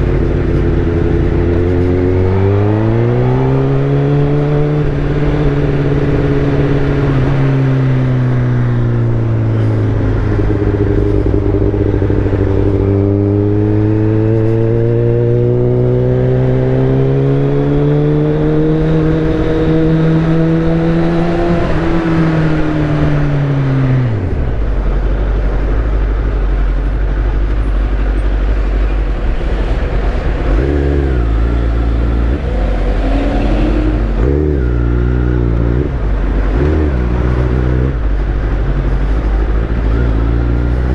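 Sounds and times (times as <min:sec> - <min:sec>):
motorcycle engine running: 0:08.0 - 0:14.9.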